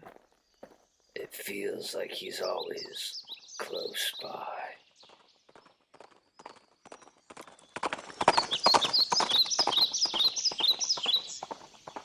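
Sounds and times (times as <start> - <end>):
horse hooves clip-clopping: 4.9 - 12.0.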